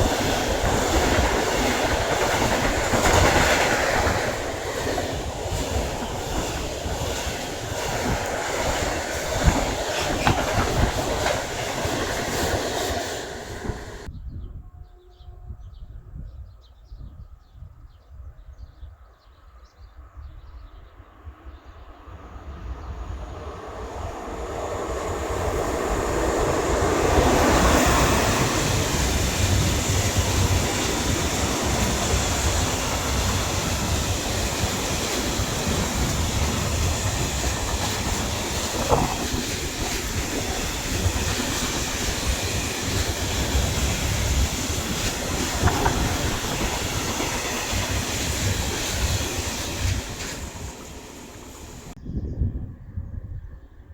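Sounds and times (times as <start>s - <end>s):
train passing: 0.0s - 14.1s, 21.0s - 52.0s
wheels clickety-clack on rails: 0.0s - 14.1s, 23.2s - 52.0s.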